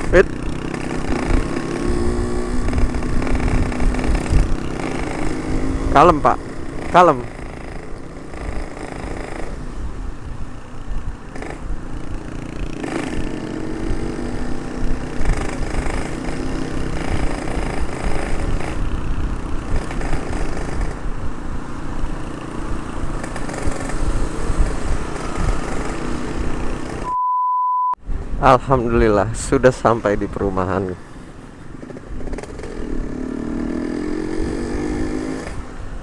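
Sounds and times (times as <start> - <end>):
two-stroke motorcycle engine accelerating: 0.0 - 9.9, 11.3 - 27.1, 31.8 - 35.7
wind rumble on camera: 0.0 - 27.1, 28.0 - 30.3, 31.5 - 36.0.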